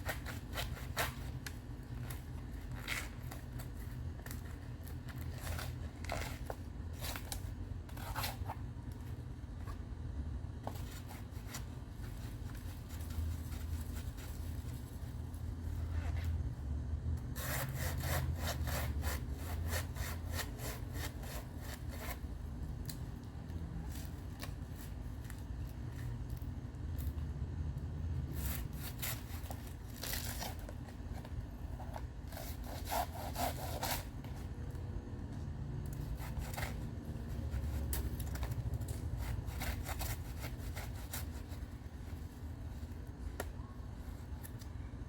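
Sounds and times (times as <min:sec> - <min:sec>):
handsaw cutting wood: 0:17.4 - 0:22.1, 0:32.4 - 0:34.0.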